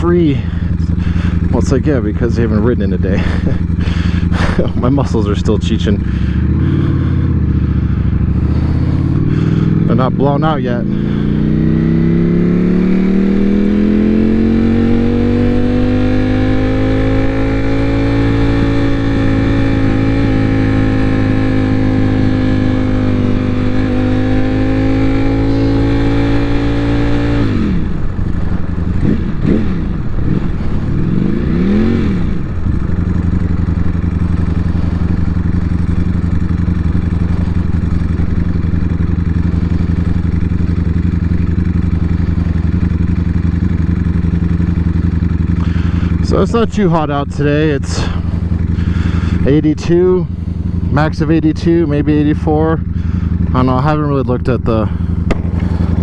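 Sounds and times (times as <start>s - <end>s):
motorcycle engine: 0.0s - 56.0s.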